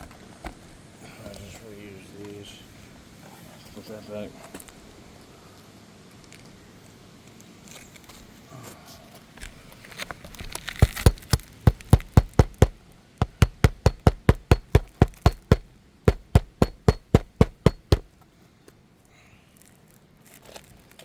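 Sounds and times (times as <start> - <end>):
hammer nailing roof shingles: 10.6 - 18.1.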